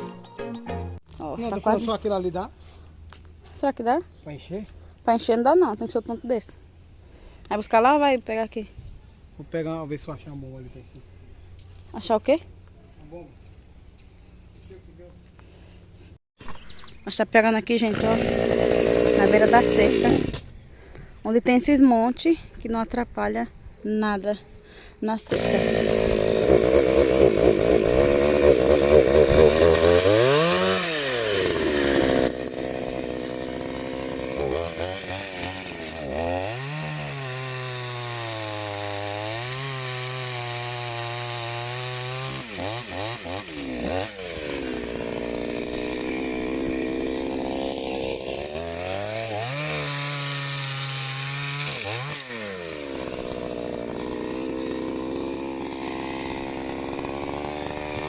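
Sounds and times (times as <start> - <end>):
chainsaw revving and idling: 1.4 - 2.5, 17.6 - 20.5, 25.2 - 58.0.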